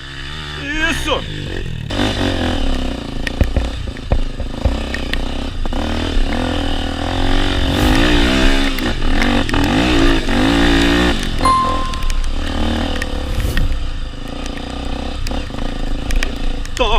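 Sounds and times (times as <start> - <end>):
motorcycle engine revving: 1.2 - 11.2.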